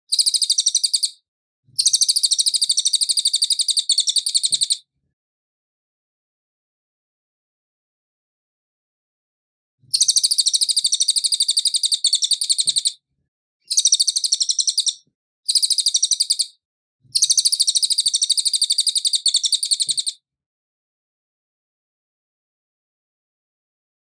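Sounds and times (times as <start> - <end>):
songbird trilling: 0.1 - 1.2, 1.8 - 4.8, 9.9 - 13.0, 13.7 - 16.5, 17.2 - 20.1.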